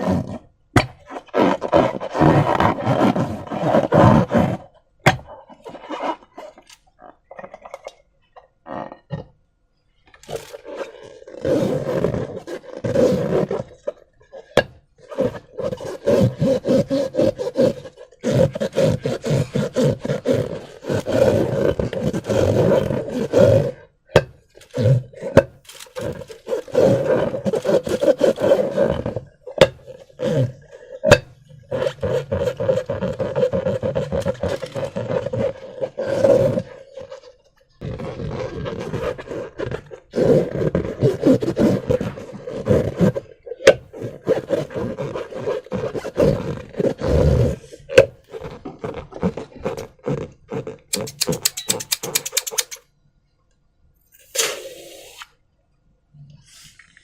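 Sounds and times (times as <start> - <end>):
rubber balloons squeaking: 0.0 - 7.5, 10.0 - 52.8
sharp clicks: 50.9 - 52.8.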